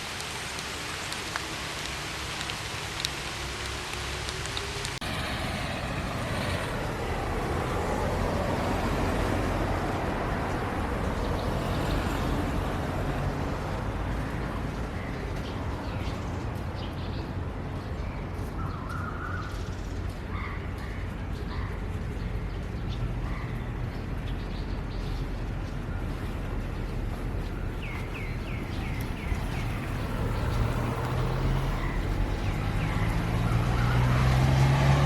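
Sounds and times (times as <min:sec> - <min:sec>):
tyre hiss on wet road: 0:00.0 - 0:05.5
low traffic rumble: 0:00.0 - 0:35.0
bird calls: 0:27.3 - 0:33.6.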